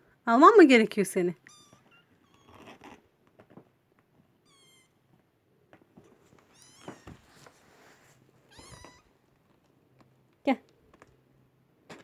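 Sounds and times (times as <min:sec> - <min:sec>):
kittens mewing: 0:06.5 - 0:07.3, 0:08.5 - 0:09.1.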